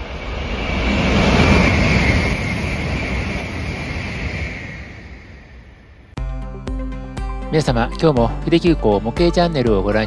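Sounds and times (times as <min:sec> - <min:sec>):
train passing: 0:00.0 - 0:06.2.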